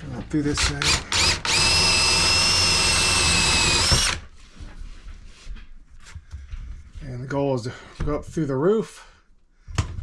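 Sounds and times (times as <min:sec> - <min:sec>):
power drill boring through wood: 0:00.5 - 0:04.3
faint handling sounds: 0:04.3 - 0:09.0.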